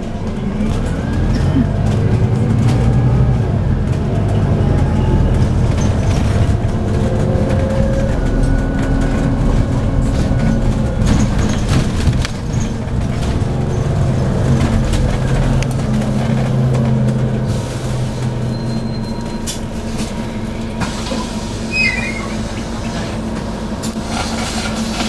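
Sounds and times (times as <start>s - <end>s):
bus engine humming: 0.0s - 25.0s
brief high squeak: 21.7s - 22.4s.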